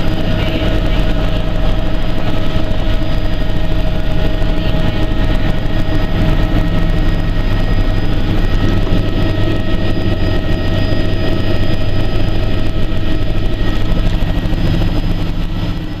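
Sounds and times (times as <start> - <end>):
helicopter turbine and rotor noise: 0.0 - 16.0
thin steady whining tones: 0.0 - 16.0.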